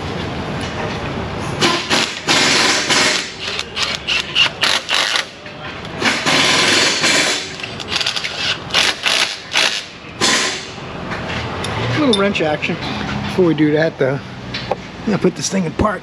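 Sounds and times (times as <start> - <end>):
power wrench bursts: 1.6 - 5.4, 6.0 - 10.8.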